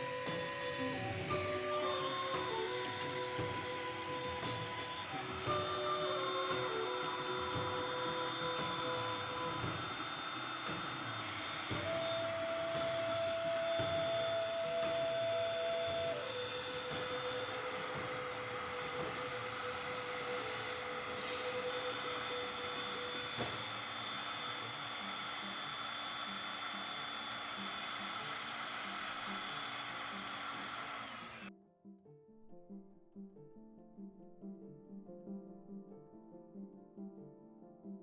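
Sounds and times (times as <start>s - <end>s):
power tool motor whining: 0.0s - 31.5s.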